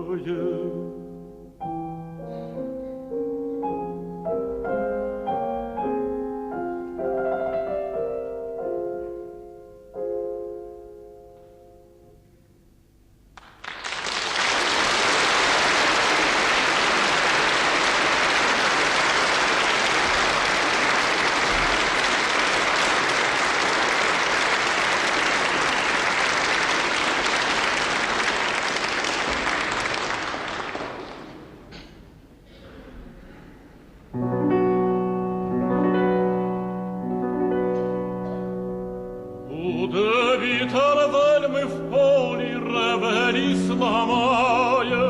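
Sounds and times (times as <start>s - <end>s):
audience applauding: 13.4s - 31.6s.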